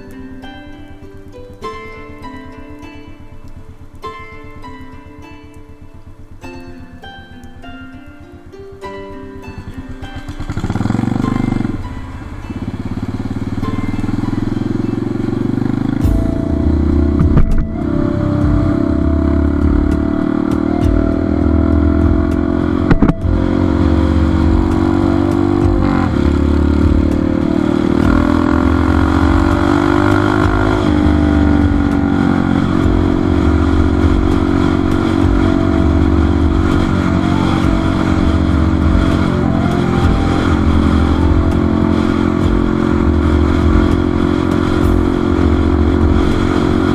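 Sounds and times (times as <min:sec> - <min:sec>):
motorcycle engine running: 0:10.2 - 0:46.9.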